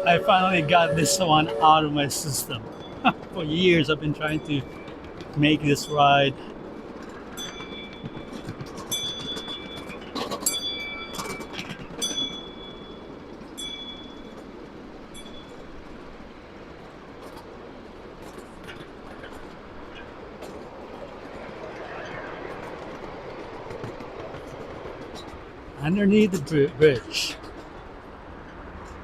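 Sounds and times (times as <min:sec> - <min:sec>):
wheels squealing on rail: 0:00.0 - 0:16.1
miniature train rumble: 0:00.0 - 0:29.0.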